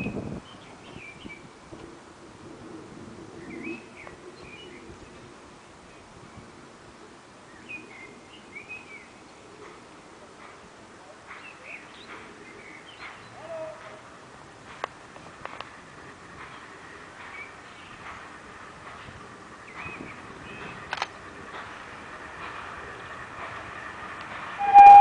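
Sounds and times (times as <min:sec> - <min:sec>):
faint outdoor background noise: 0:00.0 - 0:25.0
songbird chirping: 0:15.7 - 0:25.0.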